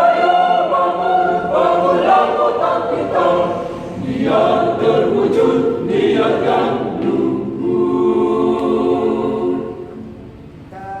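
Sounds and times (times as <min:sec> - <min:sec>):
choir singing: 0:00.0 - 0:10.4.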